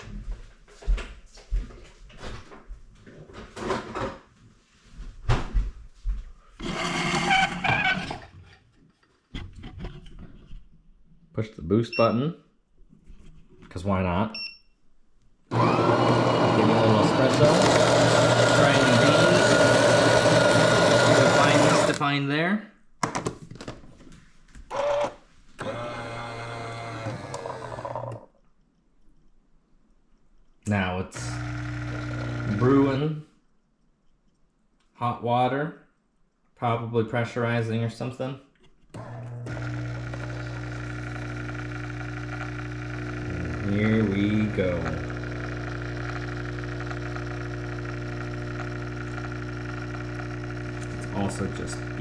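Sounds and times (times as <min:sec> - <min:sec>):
espresso machine motor whir: 0:06.6 - 0:08.2, 0:15.5 - 0:22.0, 0:24.7 - 0:28.2, 0:31.2 - 0:32.9, 0:39.0 - 0:52.0.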